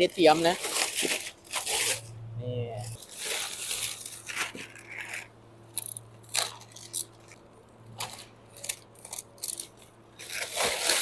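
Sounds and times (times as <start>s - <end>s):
plastic wrapping crinkling: 0.0s - 2.1s, 2.9s - 11.0s
low hum: 1.6s - 10.2s.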